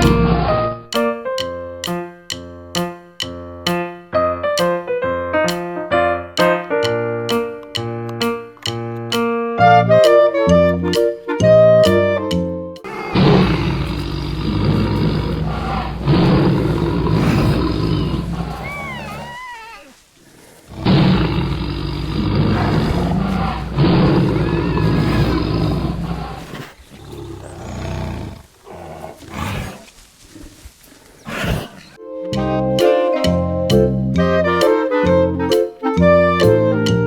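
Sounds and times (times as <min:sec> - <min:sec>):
big cat roaring and growling: 0:12.8 - 0:29.9, 0:31.2 - 0:32.0.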